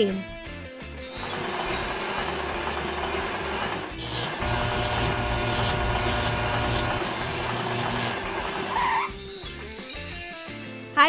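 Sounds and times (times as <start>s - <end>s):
wheels clacking over rail joints: 2.2s - 4.0s
train rumbling on rails: 2.2s - 5.3s.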